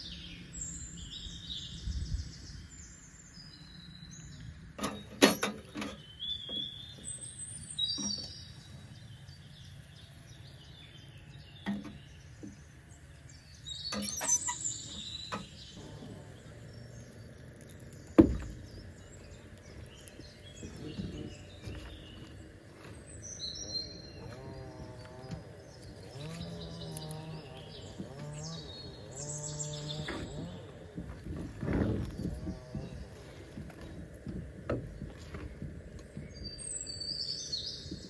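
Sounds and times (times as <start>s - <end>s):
birds chirping: 0.0s - 38.0s.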